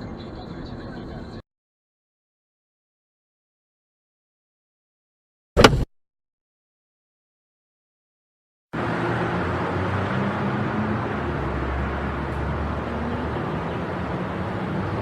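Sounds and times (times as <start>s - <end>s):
road noise: 0.0s - 1.4s, 8.8s - 15.0s
vehicle engine hum: 0.0s - 1.4s, 8.8s - 15.0s.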